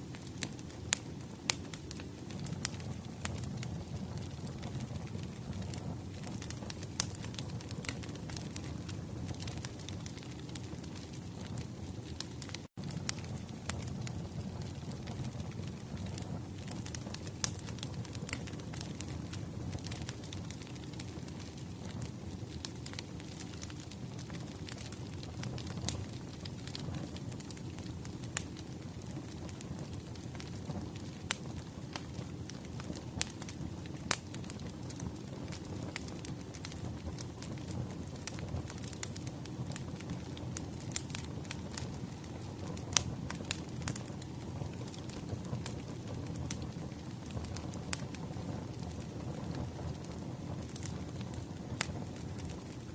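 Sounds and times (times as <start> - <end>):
firewood crackling: 0.0 - 52.9.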